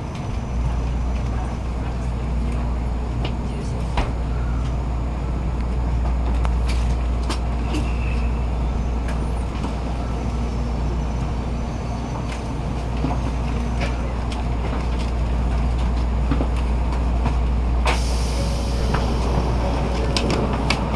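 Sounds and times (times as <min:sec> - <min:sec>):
train cabin low rumble: 0:00.0 - 0:20.9.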